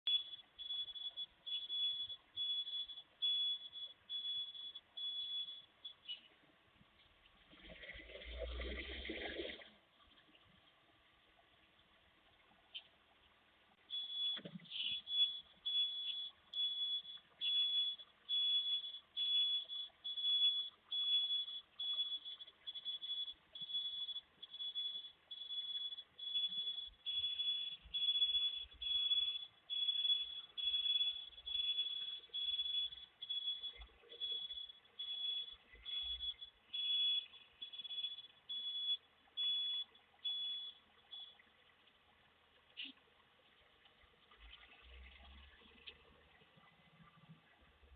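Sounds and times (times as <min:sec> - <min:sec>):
truck reversing alarm beeping: 0:00.1 - 0:06.3, 0:13.7 - 0:41.5.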